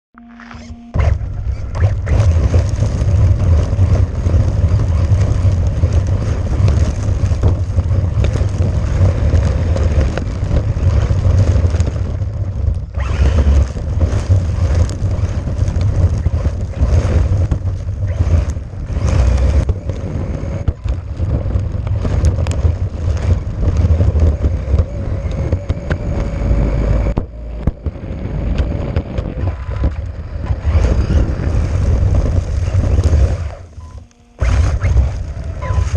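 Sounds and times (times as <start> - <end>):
rc buggy rumble: 0.1 - 35.9
faint wavering tone: 0.2 - 1.0.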